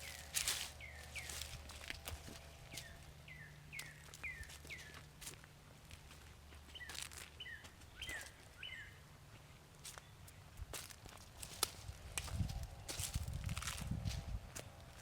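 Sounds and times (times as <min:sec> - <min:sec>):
songbird calling: 0:00.0 - 0:05.1, 0:06.7 - 0:10.5
faint footsteps: 0:00.0 - 0:08.6, 0:09.3 - 0:15.0.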